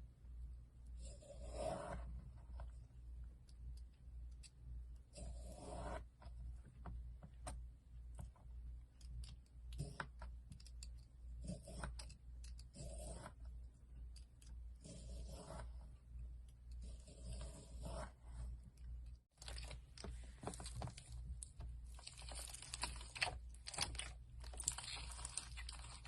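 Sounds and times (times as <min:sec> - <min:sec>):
slime squishing: 0:19.3 - 0:26.0.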